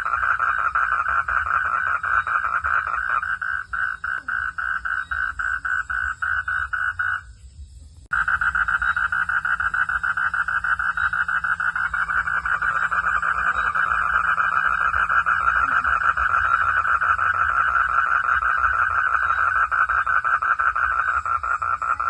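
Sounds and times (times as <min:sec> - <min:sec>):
frog calling in pulses: 0:00.0 - 0:07.3, 0:08.1 - 0:22.0
steady low hum: 0:00.0 - 0:22.0.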